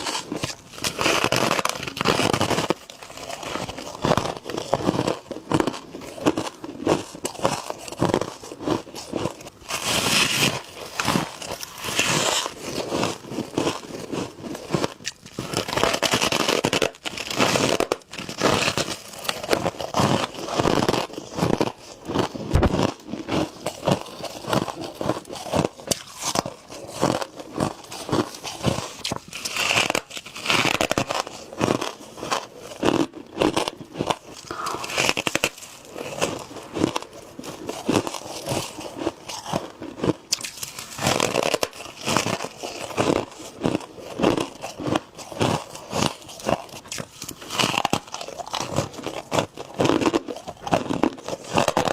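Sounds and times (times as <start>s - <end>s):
person chewing crunchy frost: 0.0s - 51.9s.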